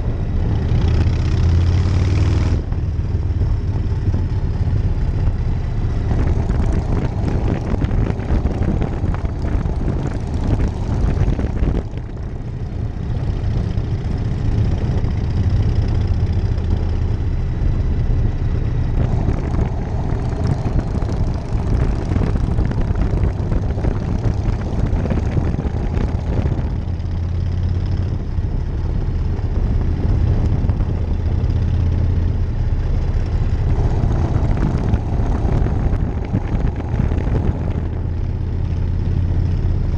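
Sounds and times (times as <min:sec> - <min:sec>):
motorcycle engine running: 0:00.0 - 0:39.9
wind rushing: 0:05.7 - 0:13.6, 0:18.3 - 0:27.0, 0:32.7 - 0:38.9.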